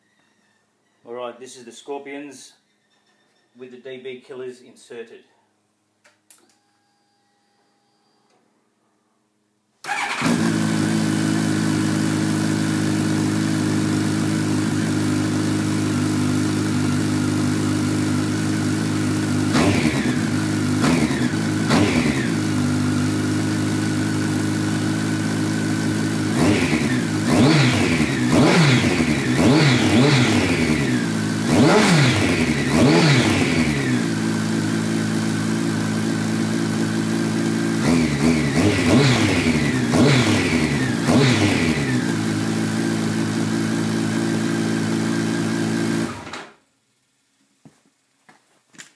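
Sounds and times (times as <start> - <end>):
motorcycle engine idling and revving: 9.9 - 46.4.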